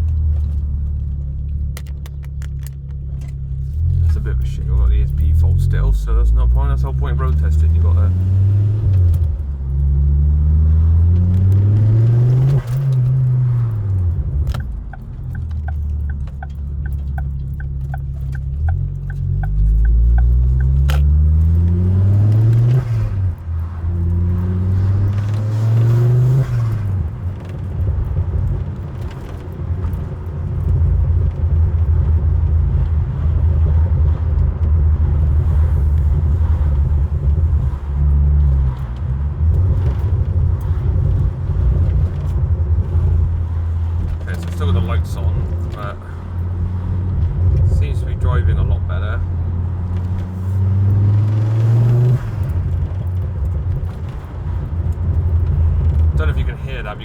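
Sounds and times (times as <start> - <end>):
car engine accelerating through gears: 0.0 - 57.0
evenly spaced ticks: 14.4 - 21.6.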